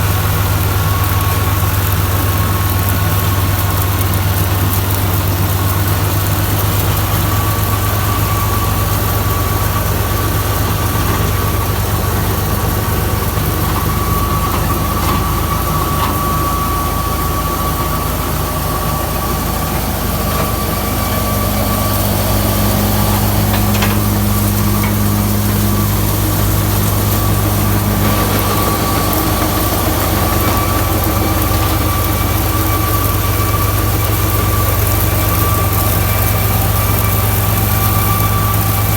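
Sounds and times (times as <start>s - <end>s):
high-pitched whine: 0.0s - 38.9s
tractor diesel engine running: 0.0s - 38.9s.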